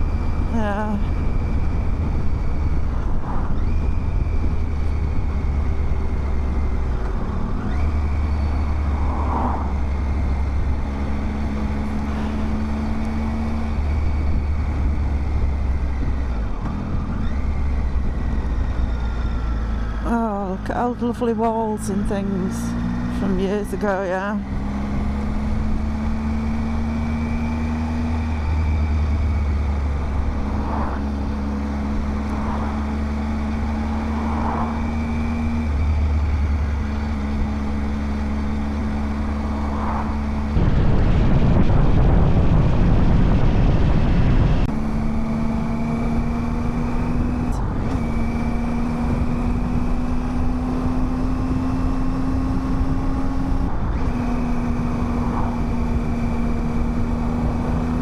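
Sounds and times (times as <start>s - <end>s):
rush of noise: 0.0s - 4.6s, 6.9s - 14.4s, 26.6s - 50.2s
motorcycle engine running: 0.0s - 58.0s.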